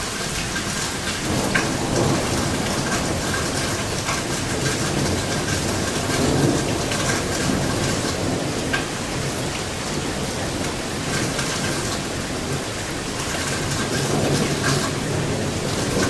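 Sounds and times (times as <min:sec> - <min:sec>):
heavy rain pattering: 0:00.0 - 0:16.0
distant thunder rumble: 0:01.2 - 0:16.0.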